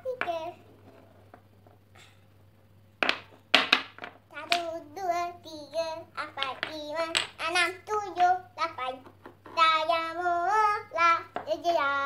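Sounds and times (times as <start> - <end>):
girl singing: 0.0 - 0.6, 4.3 - 12.0
wooden toy blocks clacking: 3.0 - 4.7, 6.2 - 7.6.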